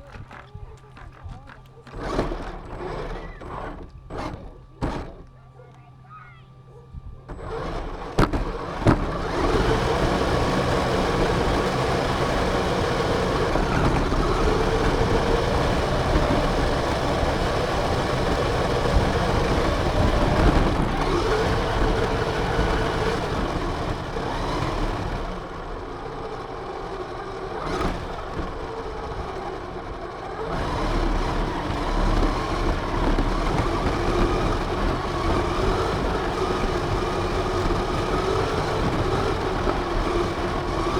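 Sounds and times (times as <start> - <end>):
toy car drivetrain whine: 0.0 - 40.9
tyre and wind noise: 6.9 - 40.9
knocks: 8.2 - 9.1.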